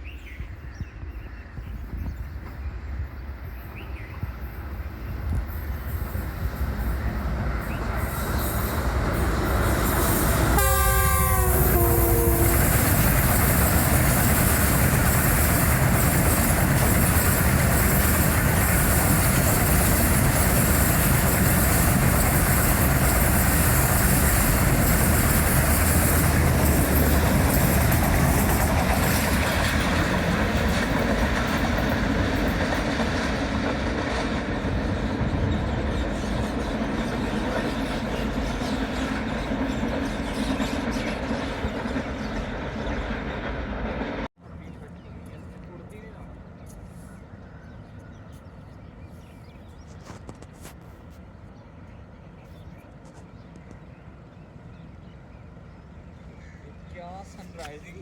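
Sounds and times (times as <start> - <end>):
train passing at speed: 0.0 - 58.0
locomotive horn: 9.7 - 12.9.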